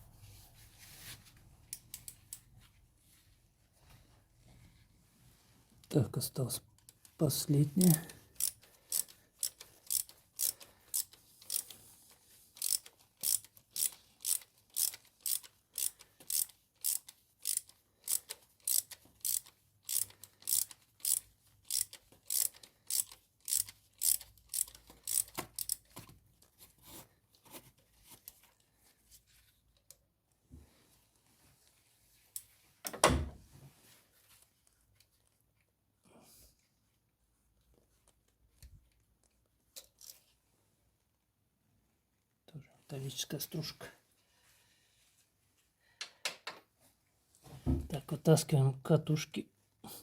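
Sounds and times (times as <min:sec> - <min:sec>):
ratchet wrench clicking: 0:07.9 - 0:11.8, 0:12.6 - 0:25.9.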